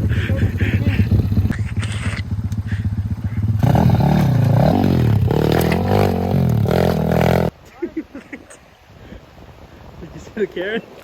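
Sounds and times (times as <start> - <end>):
motorbike engine chugging and revving: 0.4 - 7.5.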